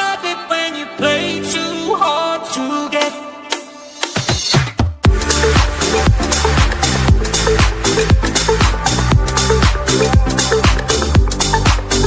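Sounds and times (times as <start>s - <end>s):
electronic dance music: 2.9s - 12.0s.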